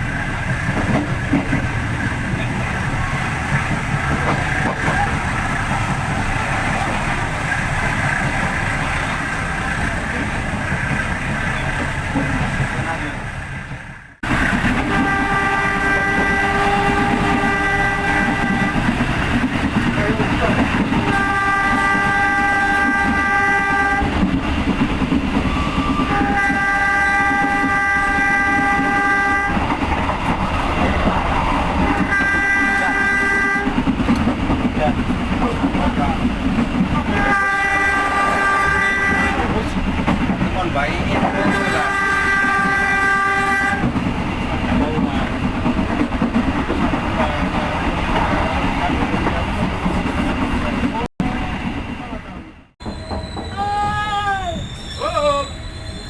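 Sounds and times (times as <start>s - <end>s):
rail and wheel noise: 0.0s - 56.0s
train engine low rumble: 0.0s - 56.0s
locomotive horn blasts: 14.7s - 19.0s, 21.0s - 24.2s, 25.7s - 29.8s, 31.9s - 33.8s, 37.0s - 39.7s, 41.4s - 44.0s.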